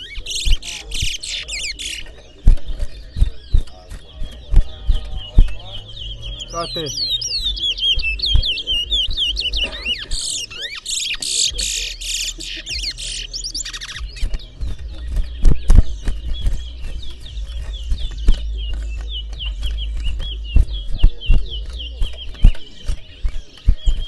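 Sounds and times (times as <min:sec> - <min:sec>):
harsh buzzy bird call: 0:04.4 - 0:14.2
bird warbling whistles: 0:05.4 - 0:14.2.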